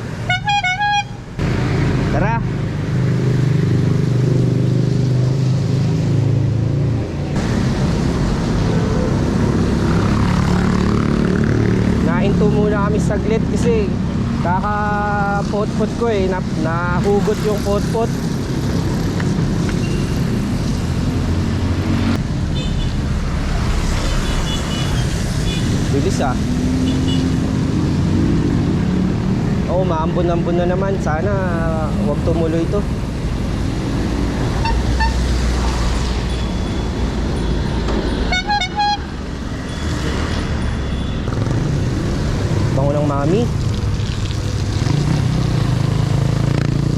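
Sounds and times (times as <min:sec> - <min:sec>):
road and traffic noise: 0:00.0 - 0:46.9
bicycle horn beeping: 0:00.2 - 0:01.2, 0:34.6 - 0:35.3, 0:38.2 - 0:39.2.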